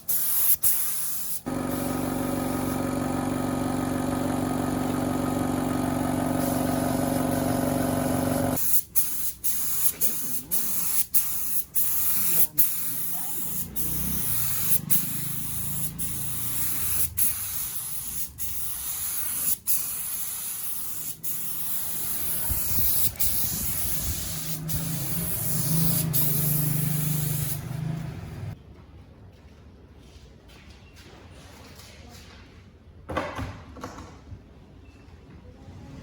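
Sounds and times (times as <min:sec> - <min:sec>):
compressed air spray hissing: 0:00.0 - 0:02.8, 0:06.2 - 0:27.9.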